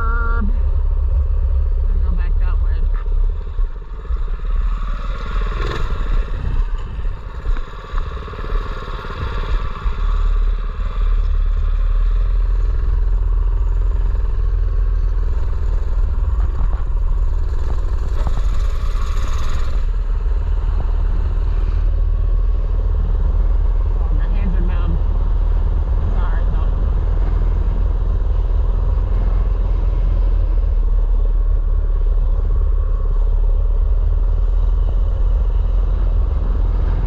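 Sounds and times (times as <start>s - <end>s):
wind rumble on microphone: 0.0s - 37.0s
small bike engine running: 15.2s - 37.0s.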